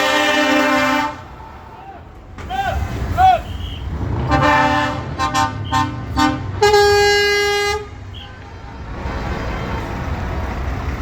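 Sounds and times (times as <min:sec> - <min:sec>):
high-pitched horn blast: 0:00.0 - 0:01.3, 0:03.6 - 0:08.1
truck horn toots: 0:00.0 - 0:01.4, 0:02.6 - 0:08.5
engines rumbling: 0:00.0 - 0:11.0.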